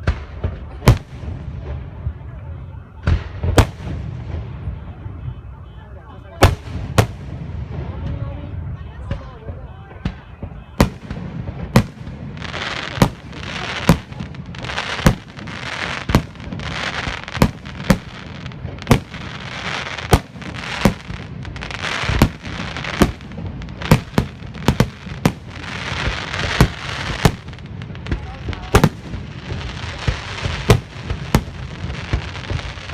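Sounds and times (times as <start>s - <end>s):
fireworks bangs: 0.0s - 32.9s
fireworks crackling hiss: 10.8s - 32.9s.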